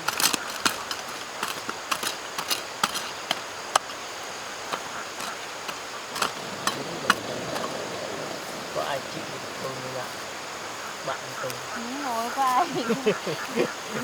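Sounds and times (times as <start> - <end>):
hand tool clicks and knocks: 0.0 - 4.0, 4.7 - 7.2
steady background hiss: 0.0 - 14.0.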